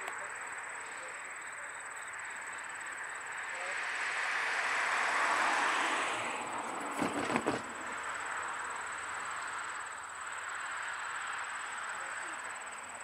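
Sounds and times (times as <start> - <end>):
high-pitched whine: 0.0 - 5.8
distant freight train rushing: 0.4 - 10.5.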